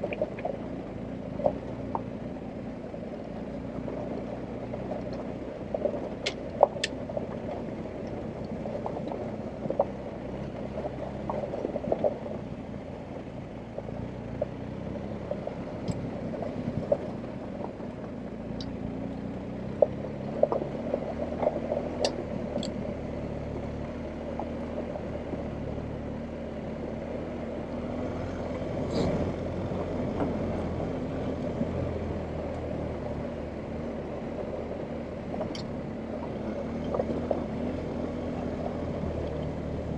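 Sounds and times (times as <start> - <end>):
motorcycle engine running at low revs: 0.0 - 39.9
sharp clicks and knocks: 35.3 - 37.9.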